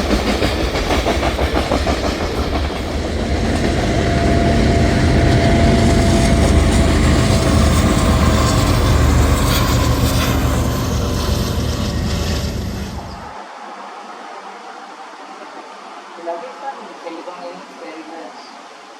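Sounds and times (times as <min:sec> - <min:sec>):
wheels clacking over rail joints: 0:00.0 - 0:13.3
freight train rumbling past: 0:00.0 - 0:13.4
faint steady whine: 0:03.2 - 0:13.3.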